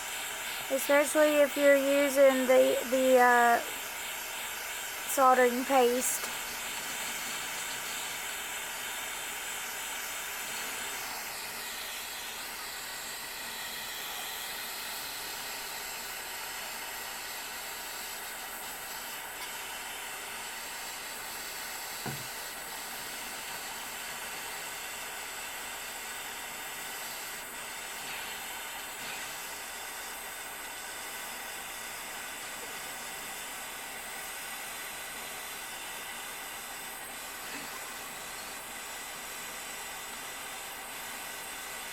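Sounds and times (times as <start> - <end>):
torch flame hissing: 0.0 - 41.9
faint tap: 22.0 - 22.3.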